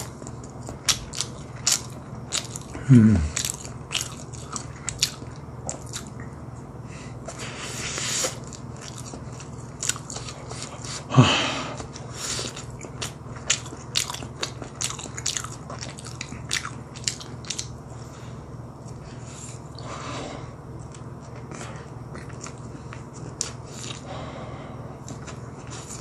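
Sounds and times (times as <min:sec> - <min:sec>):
crunching and chewing food: 0:00.0 - 0:26.0
person humming low: 0:02.8 - 0:03.4.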